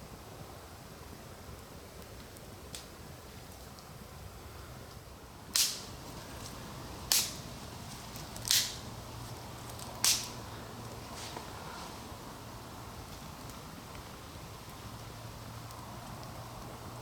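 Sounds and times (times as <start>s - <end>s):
firewood cracking: 5.5s - 11.6s.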